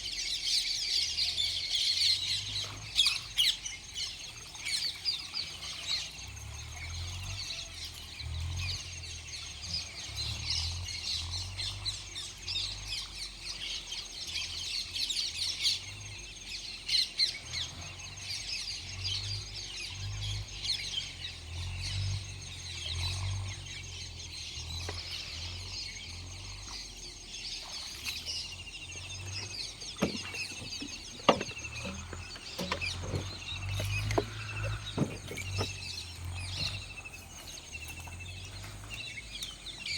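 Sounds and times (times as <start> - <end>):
birds chirping: 0.0 - 39.9
sharp knocks: 29.8 - 35.8.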